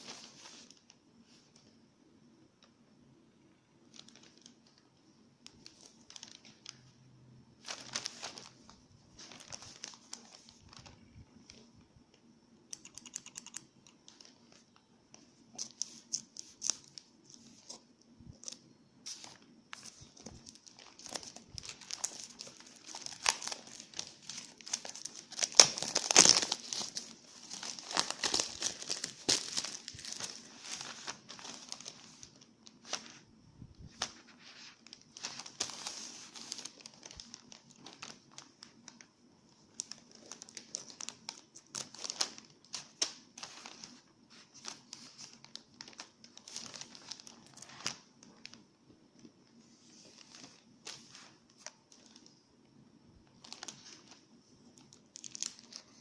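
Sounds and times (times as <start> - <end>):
packaging crinkling and tearing: 3.8 - 6.9, 7.6 - 11.6, 15.6 - 17.8, 18.4 - 33.2, 33.9 - 39.1, 39.7 - 48.6, 53.4 - 54.2, 54.8 - 56.0.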